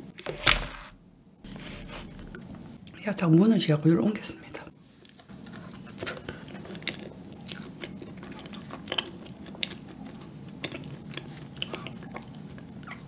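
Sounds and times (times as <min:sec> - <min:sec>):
person chewing soft dessert: 0:05.0 - 0:13.0.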